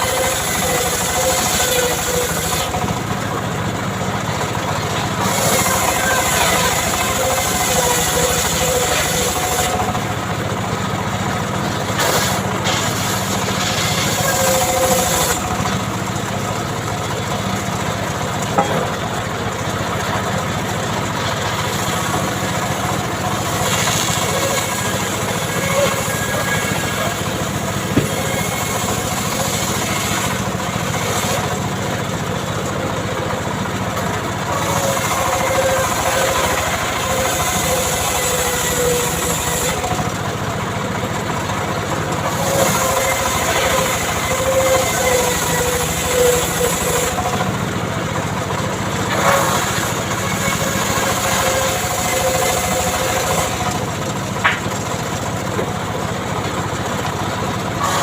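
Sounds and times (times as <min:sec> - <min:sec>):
chainsaw cutting wood: 0:00.0 - 0:03.0, 0:04.9 - 0:10.1, 0:11.8 - 0:15.8, 0:21.4 - 0:31.7, 0:34.5 - 0:40.2, 0:42.2 - 0:47.5, 0:49.1 - 0:55.0, 0:57.8 - 0:58.0.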